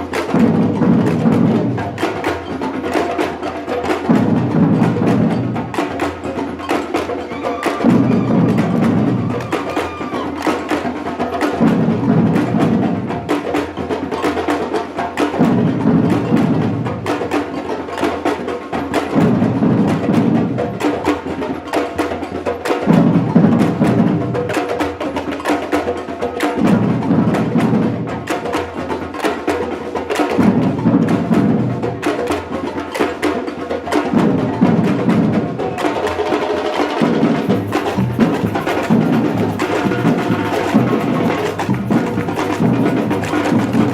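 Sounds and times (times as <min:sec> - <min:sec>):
drum and block strokes: 0:00.0 - 0:43.9
deep drums: 0:36.9 - 0:43.9.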